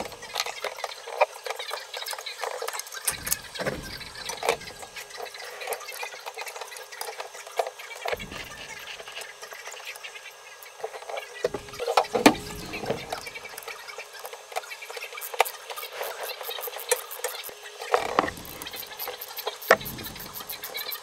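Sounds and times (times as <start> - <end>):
rapid even ticking: 3.0 - 5.4.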